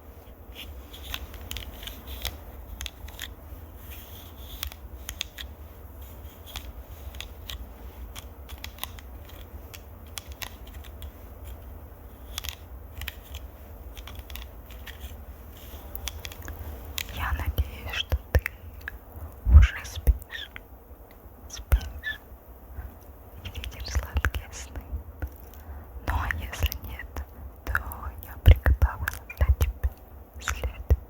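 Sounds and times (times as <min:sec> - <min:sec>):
crisp clicks and taps: 0:00.6 - 0:05.6, 0:06.2 - 0:22.2, 0:22.8 - 0:31.0
steady low rumble: 0:09.1 - 0:31.0.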